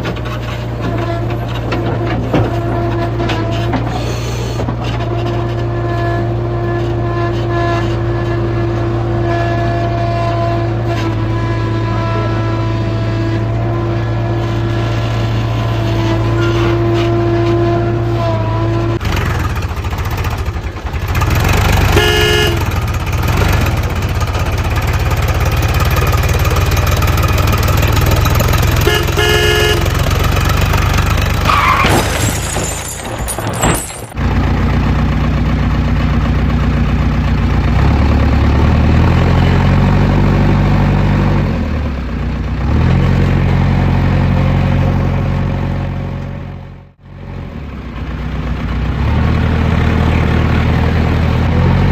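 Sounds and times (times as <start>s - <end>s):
horn honk: 0.8s - 19.0s, 21.8s - 23.0s, 28.6s - 34.1s
vehicle engine running: 18.6s - 51.9s
engine revving: 21.0s - 24.0s.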